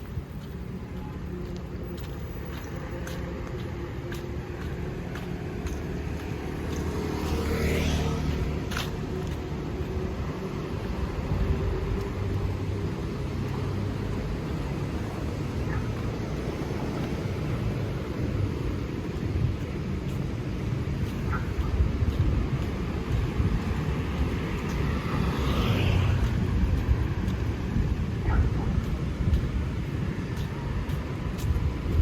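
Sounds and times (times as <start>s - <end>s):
road traffic passing: 0.0s - 32.0s
vehicle passing close: 6.1s - 10.2s.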